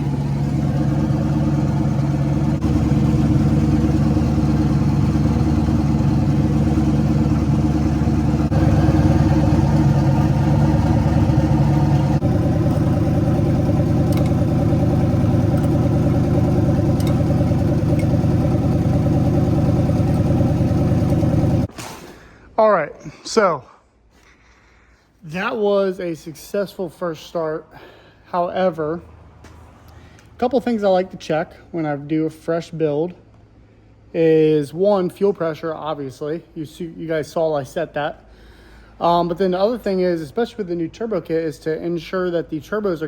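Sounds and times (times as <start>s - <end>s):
loud car engine idling: 0.0s - 21.7s.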